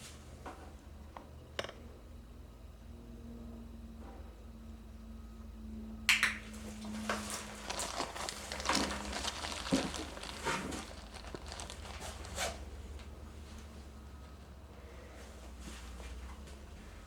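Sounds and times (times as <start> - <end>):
crinkly rustles: 6.5 - 13.7.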